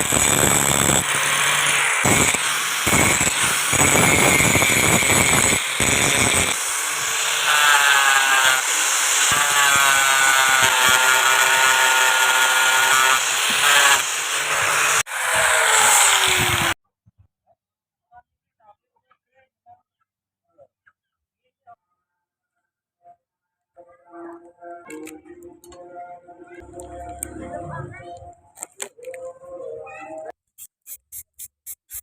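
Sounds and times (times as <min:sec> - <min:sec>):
power tool working steel: 0:00.0 - 0:16.8.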